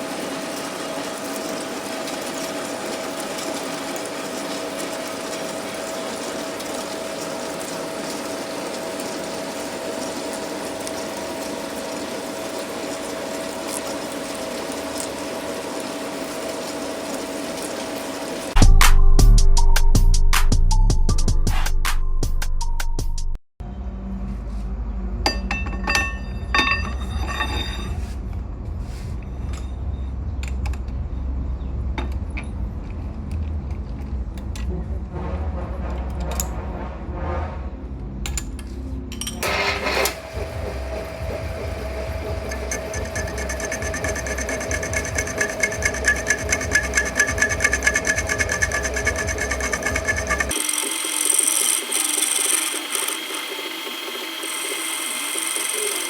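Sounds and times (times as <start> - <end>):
low machine hum: 23.6 - 50.6
metal pieces clinking: 25.5 - 28.0
tool scraping spinning workpiece: 25.8 - 28.3, 39.4 - 56.0
lathe motor hum: 39.4 - 56.0.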